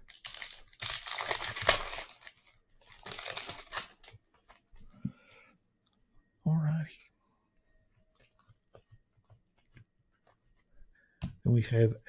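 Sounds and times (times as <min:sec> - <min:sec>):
packaging crinkling: 0:00.0 - 0:04.2.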